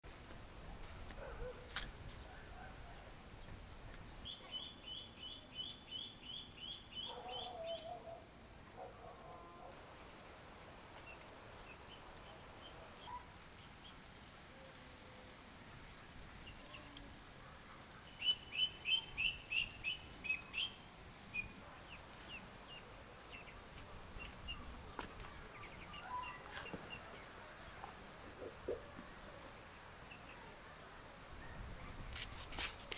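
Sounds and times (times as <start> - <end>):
steady high hiss: 0.0 - 32.9
bird chirping: 4.2 - 8.2, 18.0 - 23.6.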